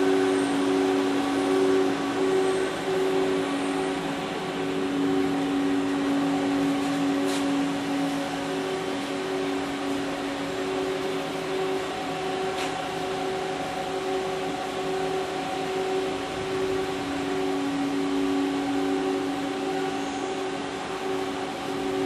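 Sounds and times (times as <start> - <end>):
lathe humming: 0.0 - 22.0.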